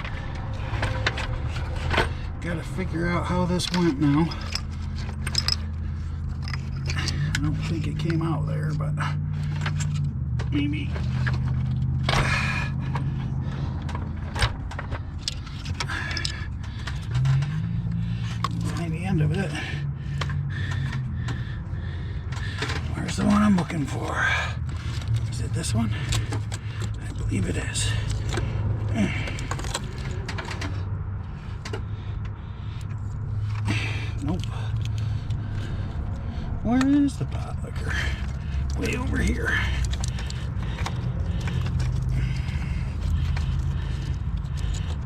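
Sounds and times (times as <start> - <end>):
engine parts clicking and scraping: 0.0 - 45.0
steady low hum: 0.0 - 45.0.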